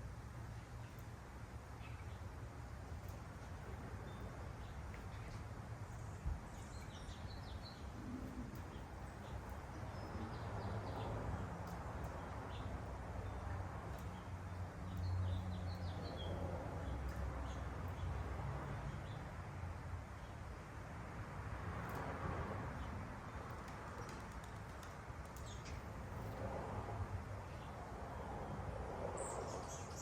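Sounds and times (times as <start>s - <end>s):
small birds chirping: 0.7s - 19.4s, 22.8s - 26.4s, 29.1s - 30.0s.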